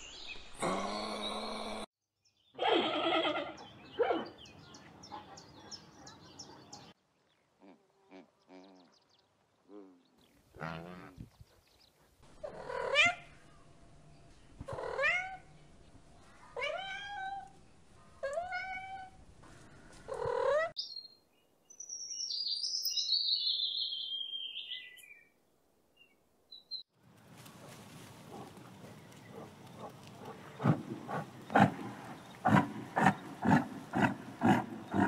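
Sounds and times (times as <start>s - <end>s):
cat meowing: 16.6s - 17.5s, 18.2s - 19.2s
rustling haze: 27.0s - 35.0s
chattering bird calls: 28.3s - 35.0s.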